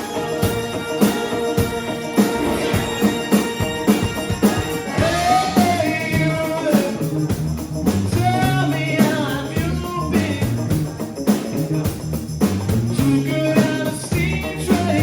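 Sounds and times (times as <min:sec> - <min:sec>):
gliding melody: 0:00.0 - 0:05.6
drum beat: 0:00.0 - 0:15.0
rock band playing: 0:00.0 - 0:15.0
bass line: 0:00.2 - 0:15.0.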